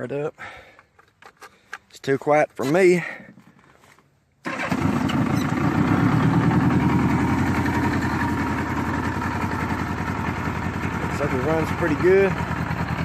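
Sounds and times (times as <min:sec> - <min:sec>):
motorcycle engine idling: 0:04.5 - 0:13.0.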